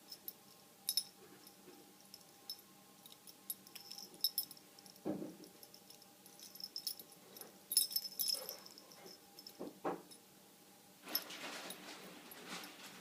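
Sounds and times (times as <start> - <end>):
collar bell jingling: 0.0 - 10.2.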